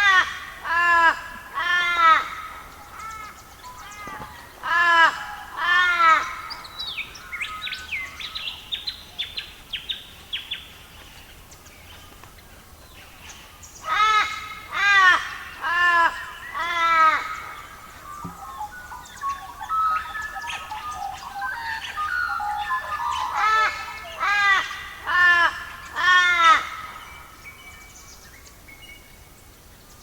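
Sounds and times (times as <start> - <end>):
harsh bird caws: 0.0 - 7.7, 13.8 - 18.6, 21.8 - 27.1
high falling bird chirps: 15.4 - 28.0
bird chattering song: 15.4 - 29.2.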